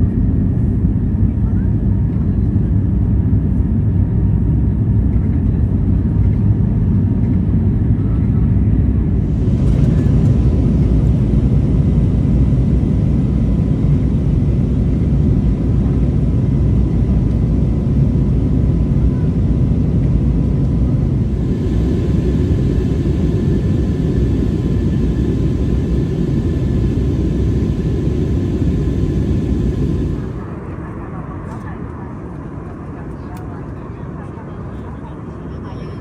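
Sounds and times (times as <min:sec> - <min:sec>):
airplane cabin engine rumble: 0:00.0 - 0:36.0
faint steady tones: 0:09.2 - 0:30.8.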